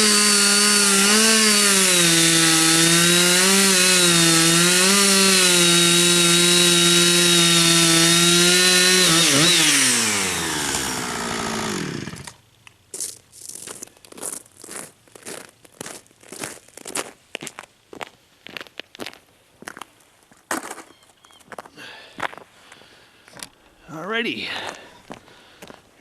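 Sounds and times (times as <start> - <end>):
chainsaw cutting wood: 0.0 - 12.4
short crunching noises: 9.0 - 23.6.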